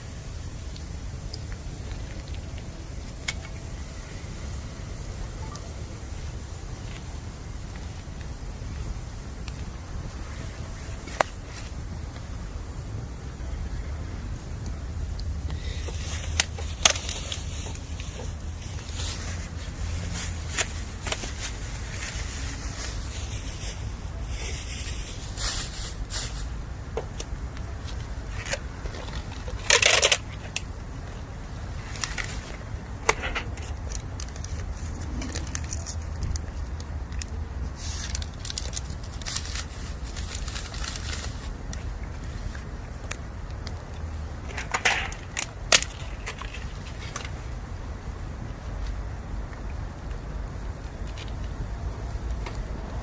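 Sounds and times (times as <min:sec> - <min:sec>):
bamboo fire crackling and popping: 0:00.0 - 0:53.0
hissing steam from burning wood: 0:00.0 - 0:53.0
steady low rumble: 0:00.0 - 0:53.0.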